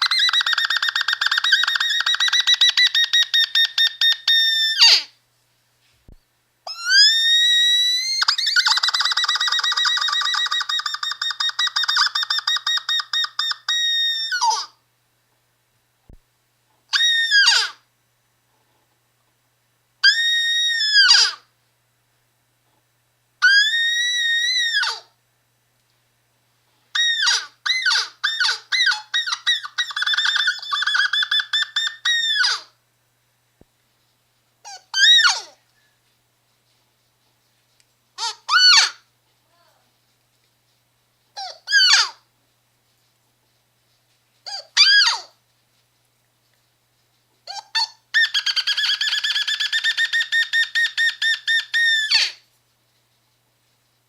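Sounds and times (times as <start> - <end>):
high-pitched squeaky calls: 0.0 - 5.1, 6.7 - 14.8, 16.9 - 17.8, 20.0 - 21.5, 23.4 - 25.1, 27.0 - 32.8, 34.6 - 35.6, 38.2 - 39.1, 41.4 - 42.2, 44.4 - 45.4, 47.4 - 52.4.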